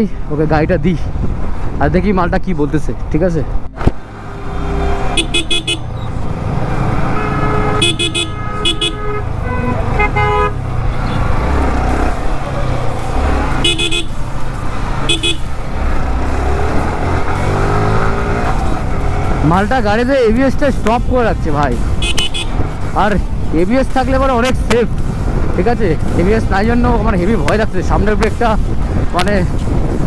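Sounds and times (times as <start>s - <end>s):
motorcycle rumble: 2.9s - 30.0s
vehicle horn honks: 4.4s - 6.1s, 7.0s - 11.3s, 13.6s - 14.2s, 15.1s - 15.5s, 22.0s - 22.7s.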